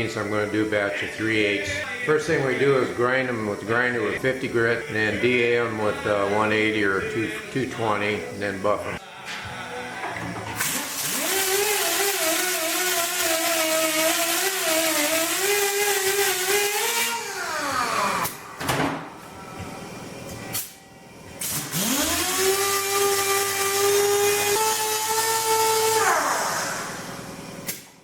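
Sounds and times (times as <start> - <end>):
electric grinder whining: 10.7 - 18.5, 21.5 - 27.3.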